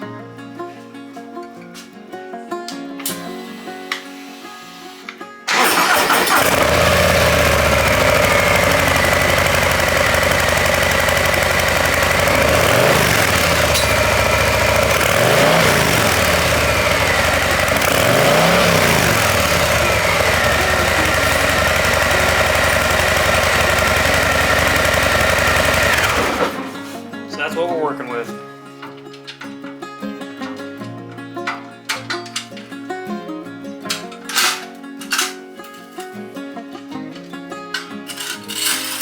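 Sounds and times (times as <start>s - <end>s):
motorcycle throttle blips: 5.5s - 26.8s
motorcycle engine idling: 5.5s - 26.9s.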